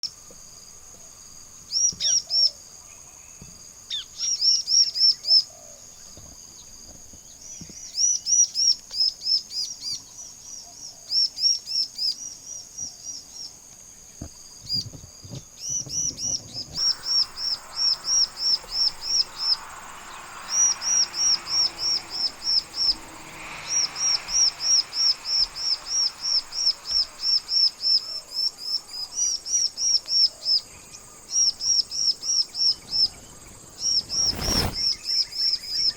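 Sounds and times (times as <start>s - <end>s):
soft hiss: 0.0s - 35.9s
high insect buzz: 15.9s - 35.9s
bird singing shrill notes: 16.8s - 35.9s.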